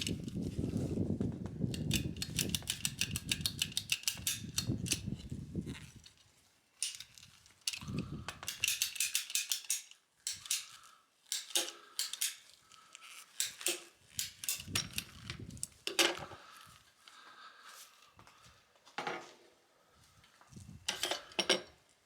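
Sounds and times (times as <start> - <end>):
small metal and plastic parts clinking: 1.7 - 16.6, 20.9 - 21.8.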